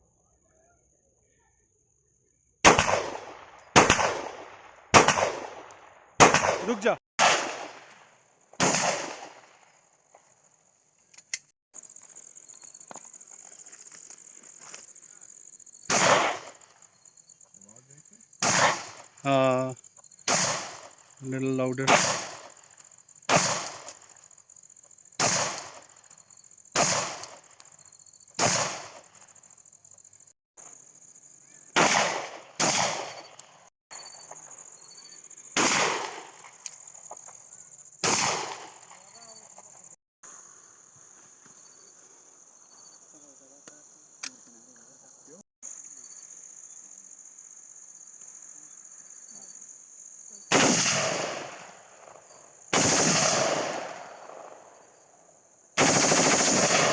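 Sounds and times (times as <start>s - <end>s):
gunshots with echo: 2.6s - 5.6s, 6.2s - 7.9s, 8.6s - 9.4s, 55.8s - 56.9s
loud gunshot: 2.6s - 7.9s, 8.6s - 9.4s, 15.9s - 16.5s, 18.4s - 19.0s, 20.3s - 20.9s, 21.8s - 22.5s, 23.3s - 23.9s, 25.2s - 25.8s, 26.8s - 27.3s, 28.4s - 29.0s, 31.8s - 33.2s, 35.6s - 36.3s, 38.0s - 38.7s, 50.5s - 51.6s, 52.7s - 54.1s, 55.8s - 56.9s.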